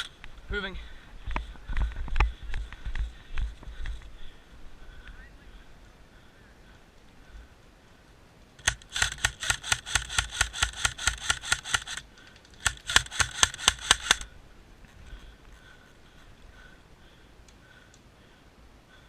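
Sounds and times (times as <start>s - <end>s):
airsoft rifle rapid firing: 8.6s - 12.0s, 12.6s - 14.3s.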